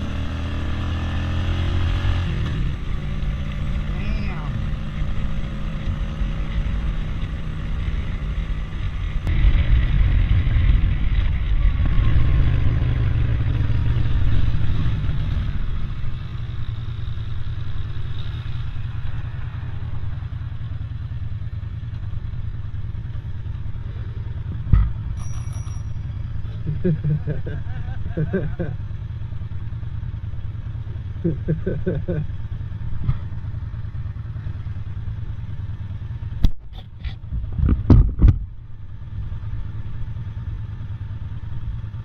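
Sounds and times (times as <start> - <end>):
wind rumble: 0.0 - 17.5
passing traffic: 0.0 - 42.0.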